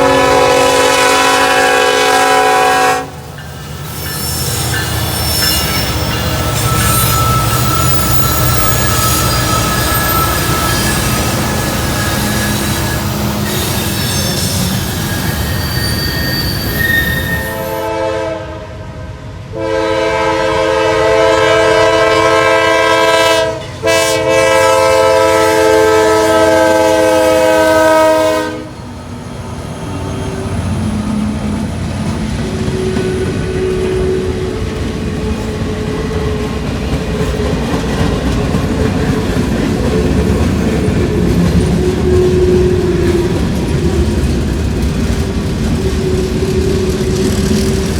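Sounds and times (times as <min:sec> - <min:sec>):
locomotive air horn: 0:00.0 - 0:03.2, 0:15.5 - 0:28.8
train wheels clattering on rails: 0:02.3 - 0:17.4, 0:28.8 - 0:47.9.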